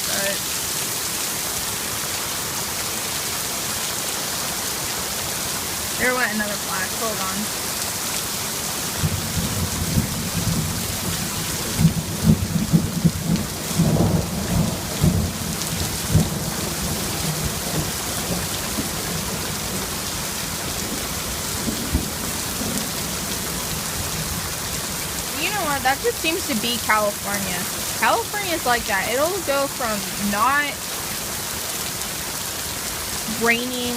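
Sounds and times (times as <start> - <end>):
heavy rain hissing: 0.0 - 33.9
thunder rumbling: 9.0 - 30.8.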